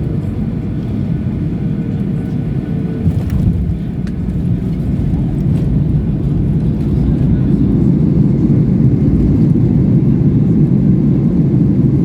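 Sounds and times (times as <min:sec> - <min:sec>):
airliner low rumble: 0:00.0 - 0:12.0.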